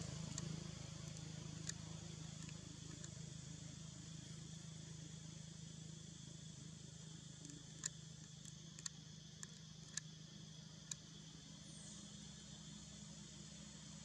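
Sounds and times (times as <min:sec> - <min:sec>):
faint hum and hiss: 0:00.0 - 0:14.0.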